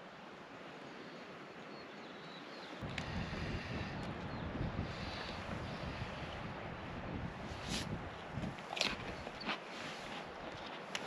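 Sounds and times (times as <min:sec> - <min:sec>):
wind buffeting microphone: 0:02.8 - 0:10.8.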